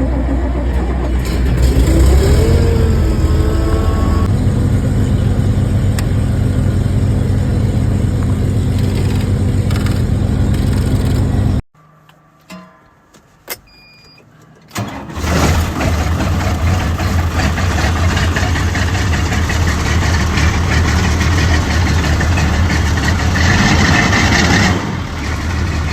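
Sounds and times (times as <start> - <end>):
tractor engine starting and idling: 0.0 - 11.6, 14.6 - 25.9
short beep: 13.7 - 14.3.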